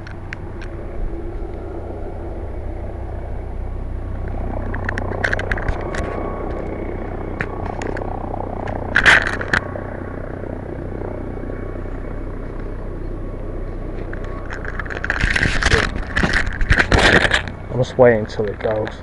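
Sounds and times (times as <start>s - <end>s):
helicopter hovering: 0.0s - 19.0s
microphone handling rustle: 13.9s - 17.7s.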